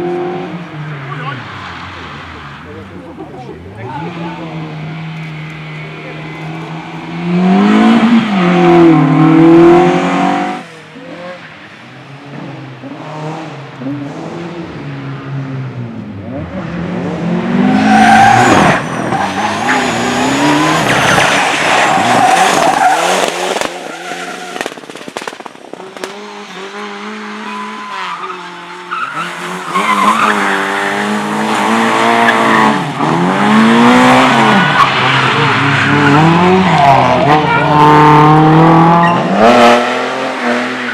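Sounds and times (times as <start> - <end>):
car engine revving hard: 0.0 - 11.4, 16.2 - 40.9
tyres squealing and skidding: 0.1 - 10.0, 17.6 - 25.2, 26.3 - 40.9.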